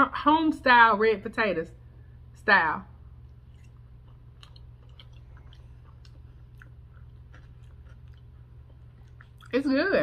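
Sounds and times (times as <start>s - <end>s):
steady low hum: 0.0s - 10.0s
person chewing food: 3.1s - 9.7s
wet mouth clicks and smacks: 3.3s - 9.6s.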